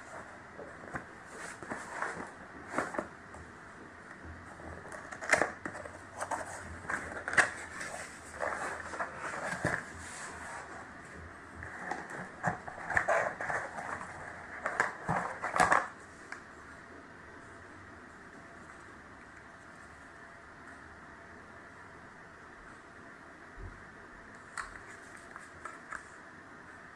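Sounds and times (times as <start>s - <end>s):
packaging crinkling and rustling: 4.8s - 10.8s, 11.6s - 16.0s
sharp clicks and snaps: 24.6s - 26.1s.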